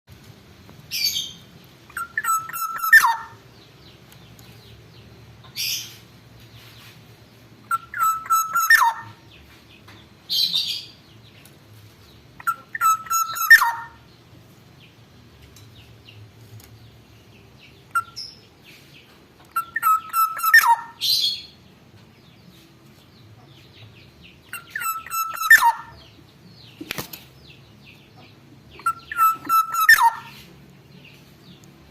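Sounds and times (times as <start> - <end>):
oriole whistled song: 1.9 - 3.4, 7.7 - 9.2, 12.4 - 14.0, 17.9 - 18.4, 19.6 - 21.5, 24.6 - 26.1, 28.8 - 30.4
harsh high bird notes: 7.7 - 9.2, 12.4 - 14.0, 24.6 - 26.0, 28.8 - 30.4.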